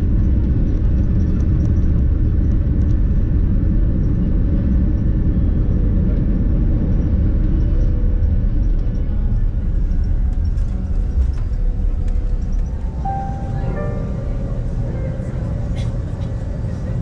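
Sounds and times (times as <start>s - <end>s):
vehicle rumbling from inside: 0.0s - 17.0s
faint steady hum: 5.2s - 17.0s.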